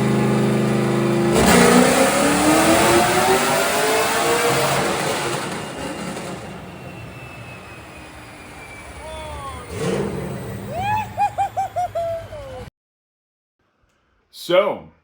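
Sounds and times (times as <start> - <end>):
car engine at high revs: 0.0 - 10.9.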